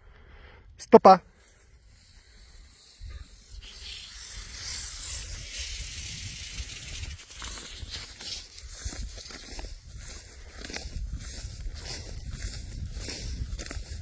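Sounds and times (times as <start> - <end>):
rustling hiss: 1.3 - 10.8
wind rumble on microphone: 2.9 - 14.0.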